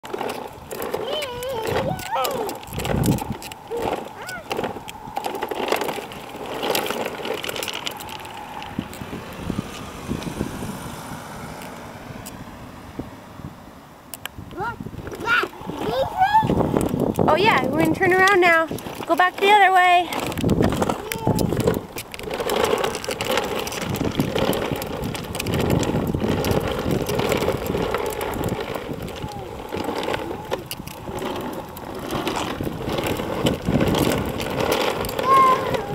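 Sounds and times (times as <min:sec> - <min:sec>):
clicks and rattles: 0:00.0 - 0:09.1, 0:14.1 - 0:35.9
toy truck wheels rumbling on concrete: 0:00.0 - 0:35.9.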